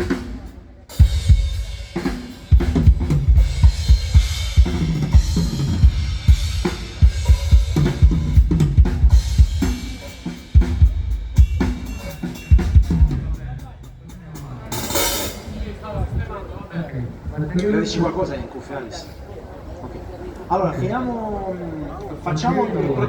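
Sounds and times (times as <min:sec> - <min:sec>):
drum kit playing: 0:00.0 - 0:15.8.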